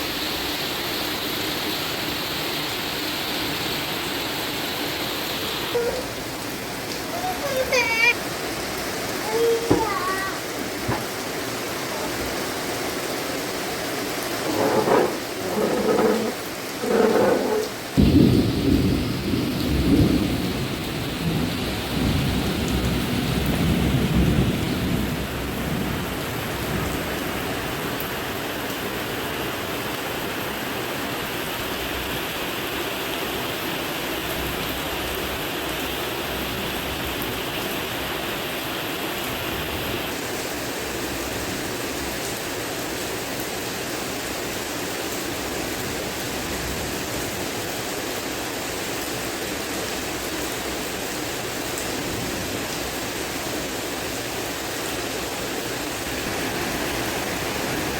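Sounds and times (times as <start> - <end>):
heavy rain hissing: 0.0 - 57.9
thunder rumble: 14.4 - 27.0.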